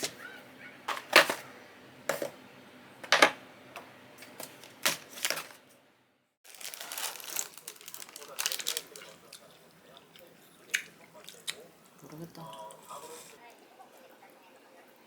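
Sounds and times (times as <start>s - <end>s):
small clicks and crackles: 6.5s - 10.2s.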